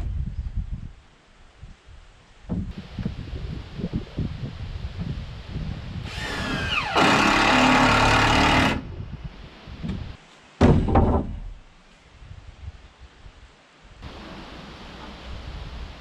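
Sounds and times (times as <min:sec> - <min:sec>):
power saw cutting wood: 0:06.1 - 0:08.8.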